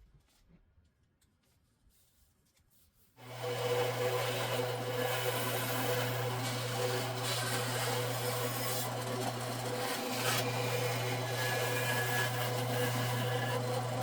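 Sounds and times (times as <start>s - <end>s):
bandsaw humming: 3.2s - 14.0s
saw blade cutting wood: 3.2s - 14.0s.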